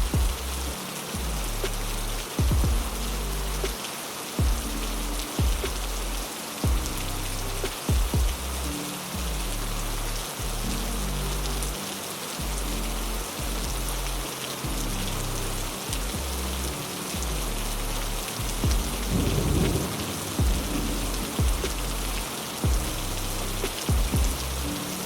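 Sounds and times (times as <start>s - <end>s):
heavy rain falling: 0.0s - 25.0s
low rumbling thunder: 18.6s - 23.2s.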